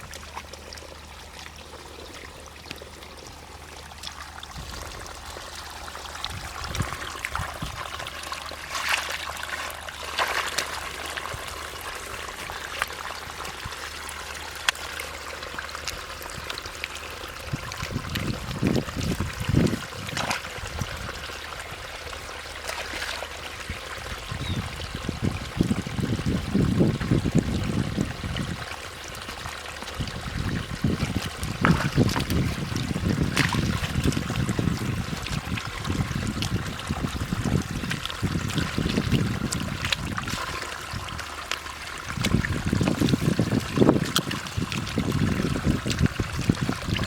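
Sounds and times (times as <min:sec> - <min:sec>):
water trickling and splashing: 0:00.0 - 0:47.0
low sloshing thuds: 0:17.4 - 0:21.4, 0:22.6 - 0:47.0.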